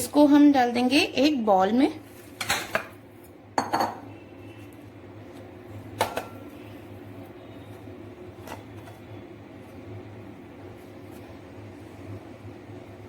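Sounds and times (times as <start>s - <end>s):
kitchenware knocking: 3.6s - 4.1s.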